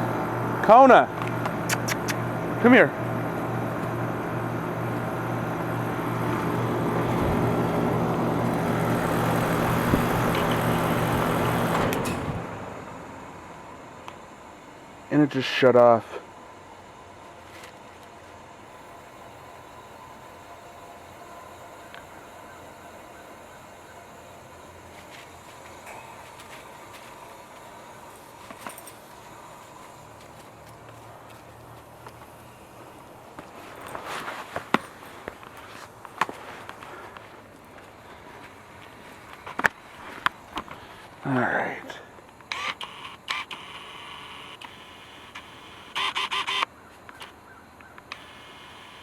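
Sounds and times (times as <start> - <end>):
heat pump compressor hum and fan: 0.0 - 49.0
unit clicks: 42.4 - 47.4, 48.0 - 49.0.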